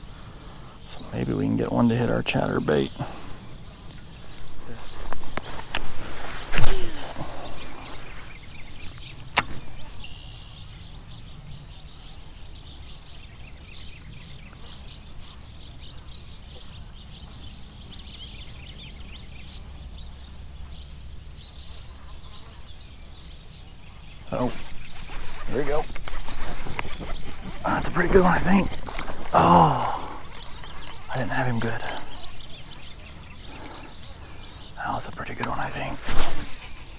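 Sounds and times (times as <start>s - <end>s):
bird chirps: 0.0s - 36.9s
fishing rod swishing through air: 5.8s - 8.1s
sharp click: 9.3s - 9.9s.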